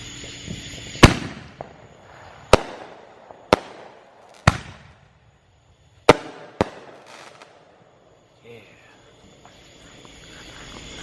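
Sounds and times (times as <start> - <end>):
fireworks bangs with echo: 0.8 - 5.2, 6.0 - 7.8.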